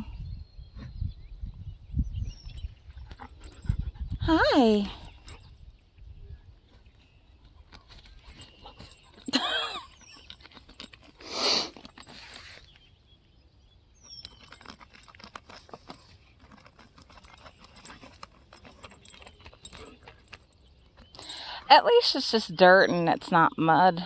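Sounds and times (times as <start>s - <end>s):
puppy scrabbling in dirt: 14.0s - 21.2s.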